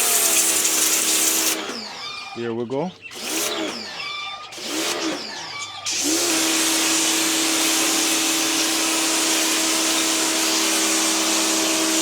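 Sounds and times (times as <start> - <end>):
pressure washer trigger pulled: 0.0 - 1.9
pump motor humming: 0.0 - 2.1, 5.9 - 12.0
hiss of water jet: 6.0 - 12.0.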